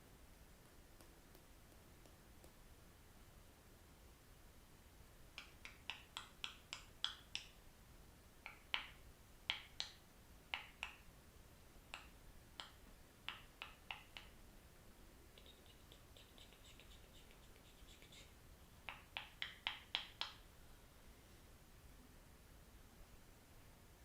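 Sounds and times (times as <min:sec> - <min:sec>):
faint rapid chittering: 0:15.4 - 0:19.4.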